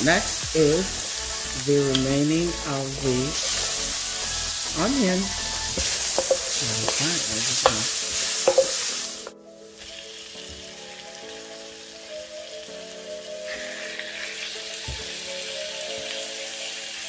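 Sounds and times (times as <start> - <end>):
onions sizzling in oil: 0.0 - 17.0
soft background music: 0.0 - 17.0
wooden spatula stirring: 0.9 - 9.3.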